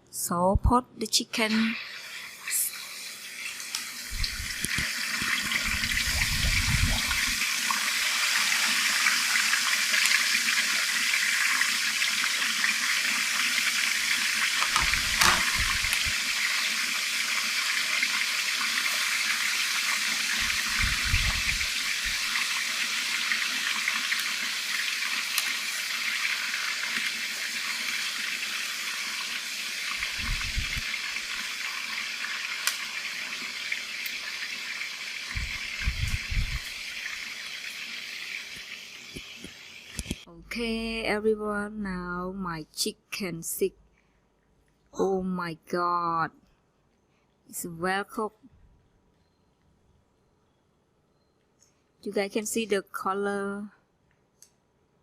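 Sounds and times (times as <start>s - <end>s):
chicken deep-frying in hot oil: 1.4s - 40.7s.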